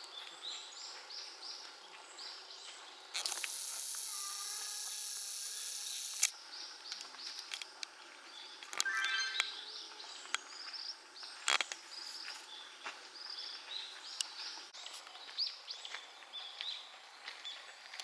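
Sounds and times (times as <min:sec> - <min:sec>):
high chirping calls: 0:03.2 - 0:06.3, 0:08.8 - 0:10.2
loud high buzz: 0:03.3 - 0:06.3.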